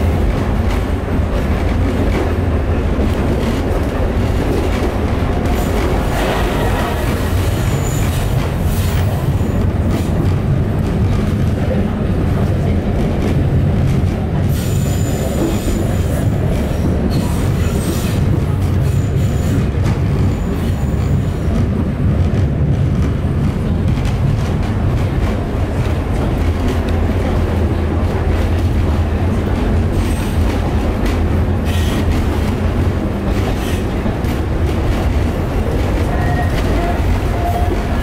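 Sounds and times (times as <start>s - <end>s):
train rumbling: 0.0s - 38.0s
train wheel squeals: 5.6s - 9.6s, 14.5s - 16.2s, 17.1s - 21.4s, 31.6s - 32.1s.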